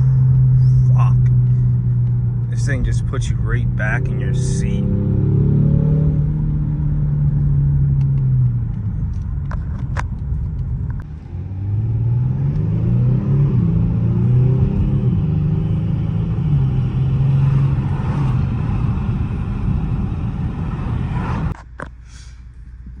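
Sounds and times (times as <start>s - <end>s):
car engine accelerating: 0.0s - 21.6s.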